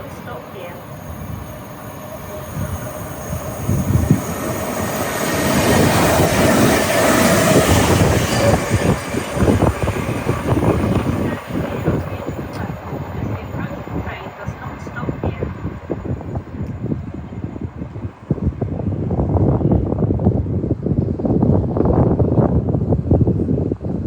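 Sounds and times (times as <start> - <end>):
faint steady whine: 0.0 - 19.2
passenger train passing: 0.0 - 23.2.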